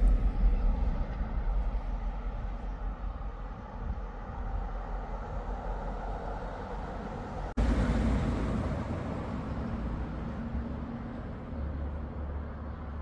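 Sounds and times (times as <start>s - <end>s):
train engine rumble: 0.0s - 13.0s.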